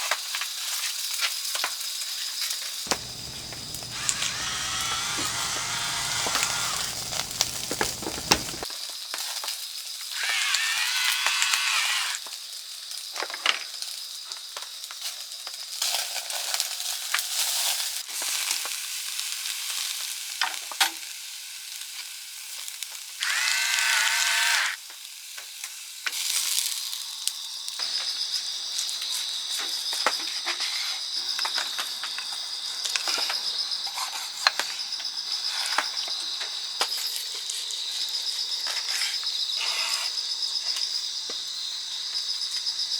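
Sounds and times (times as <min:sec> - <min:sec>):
steady high buzz: 0:02.9 - 0:08.6
steak sizzling on a grill: 0:06.7 - 0:08.6.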